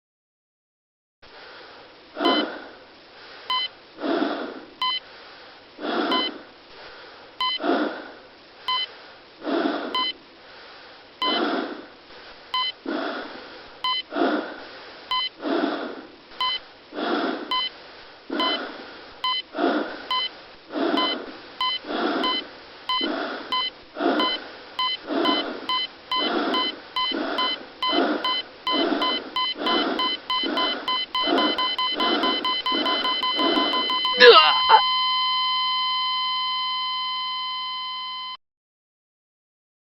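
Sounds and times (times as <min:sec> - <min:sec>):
heavy laboured breathing: 0:01.4 - 0:12.0, 0:12.8 - 0:17.7, 0:18.3 - 0:34.8
heart monitor beeping: 0:02.2 - 0:02.6, 0:03.5 - 0:03.7, 0:04.8 - 0:05.0, 0:06.1 - 0:06.4, 0:07.4 - 0:07.6, 0:08.7 - 0:08.9, 0:09.9 - 0:10.2, 0:11.2 - 0:11.5, 0:12.5 - 0:12.8, 0:13.8 - 0:14.1, 0:15.1 - 0:15.4, 0:16.4 - 0:16.6, 0:17.5 - 0:17.7, 0:18.3 - 0:19.5, 0:20.1 - 0:38.4.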